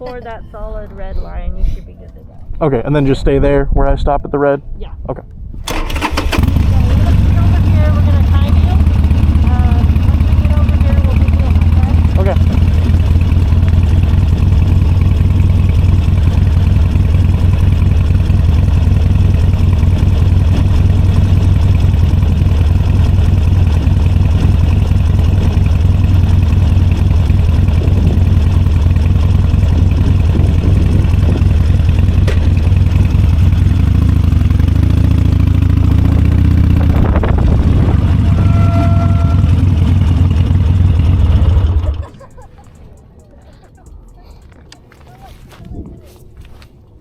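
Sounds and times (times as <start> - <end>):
motorcycle engine rumbling: 0.0 - 4.8, 5.4 - 47.0
tone gliding up and down: 36.8 - 40.5.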